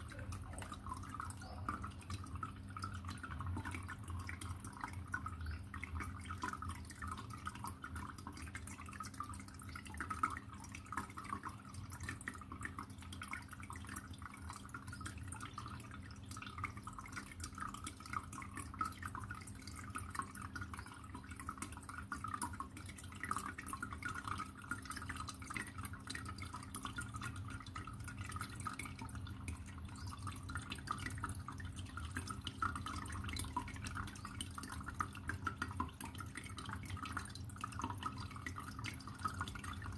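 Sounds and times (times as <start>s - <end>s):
aquarium water trickling: 0.0s - 39.9s.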